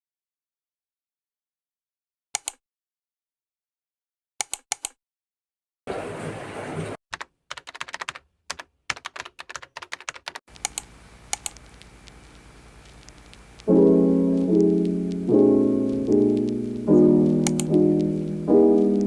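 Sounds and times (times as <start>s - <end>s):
computer keyboard typing: 7.1s - 19.0s
soft piano music: 13.7s - 19.0s.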